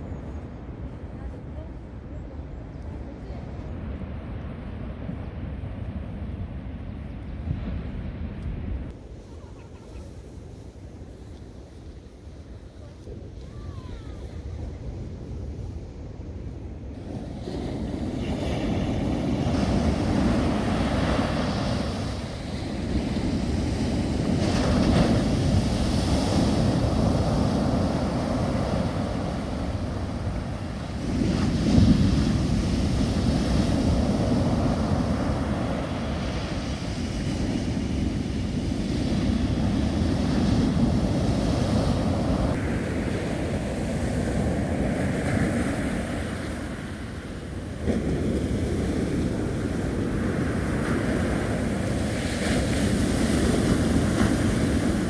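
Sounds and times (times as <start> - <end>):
wind rumble on microphone: 0.0 - 55.0
surf breaking on beach: 17.0 - 55.0.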